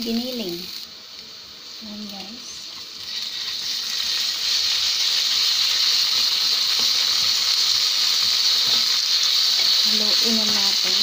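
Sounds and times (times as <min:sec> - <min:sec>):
meat sizzling in a skillet: 0:00.0 - 0:11.0.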